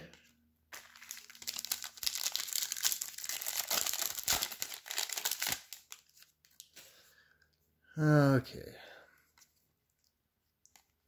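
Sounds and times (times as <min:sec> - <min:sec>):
foil wrapper crinkling and tearing: 0:00.7 - 0:06.7.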